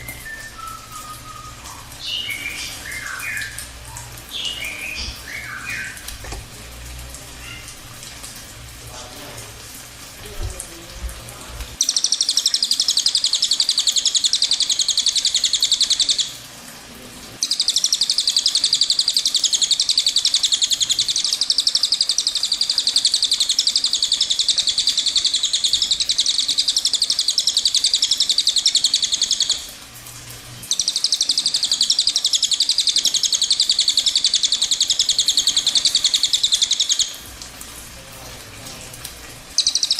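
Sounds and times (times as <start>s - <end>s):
bird singing rolling trill: 0.0s - 6.1s, 11.8s - 16.4s, 17.4s - 29.6s, 30.6s - 37.2s, 39.6s - 39.9s
faint bird chirps: 0.0s - 6.4s, 30.6s - 37.2s, 39.6s - 39.9s.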